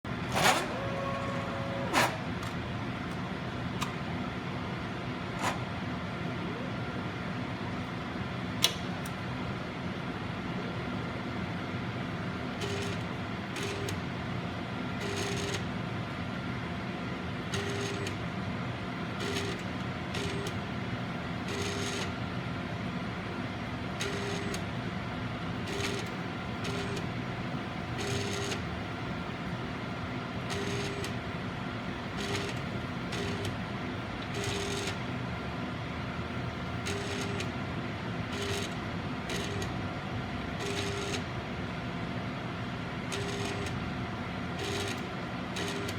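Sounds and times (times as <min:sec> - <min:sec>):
short mechanical whirs: 0:00.2 - 0:02.6, 0:05.3 - 0:05.7.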